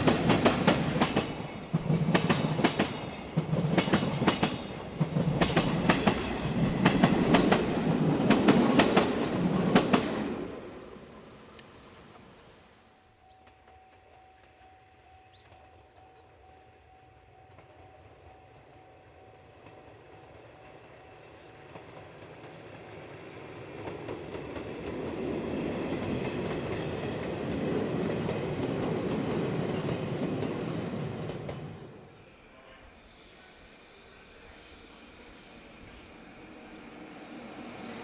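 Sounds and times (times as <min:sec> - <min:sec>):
train wheels and motors running: 0:00.0 - 0:10.6.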